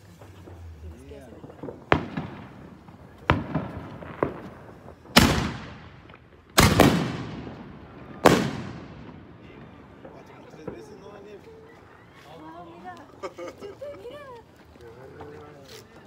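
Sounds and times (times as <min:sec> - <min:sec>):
firework shells bursting with echo: 0:00.0 - 0:11.3
fireworks popping: 0:00.0 - 0:13.2.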